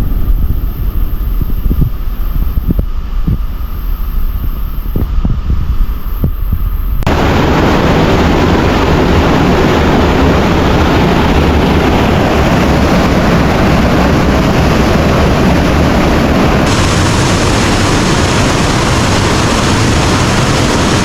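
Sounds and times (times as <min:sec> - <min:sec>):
roar of rushing water: 0:07.1 - 0:21.0.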